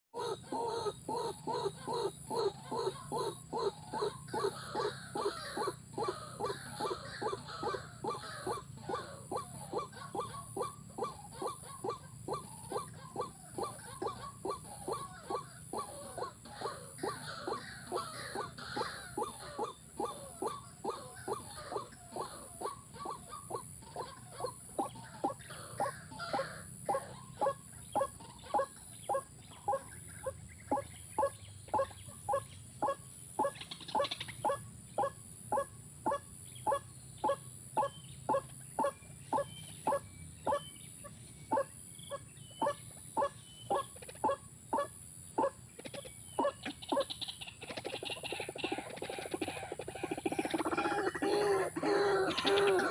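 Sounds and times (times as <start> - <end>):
animal calling in short calls: 41.5 - 52.9.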